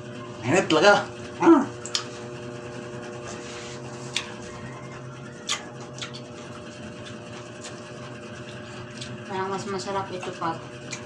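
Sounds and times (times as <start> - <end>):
electrical hum: 0.0 - 11.0
quiet chewing: 3.2 - 4.7, 5.4 - 9.2.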